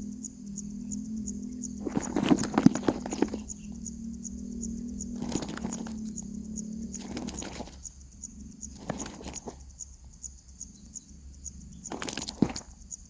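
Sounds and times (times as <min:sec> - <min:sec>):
nestlings rustling and scratching: 0:01.6 - 0:03.9, 0:04.6 - 0:13.0.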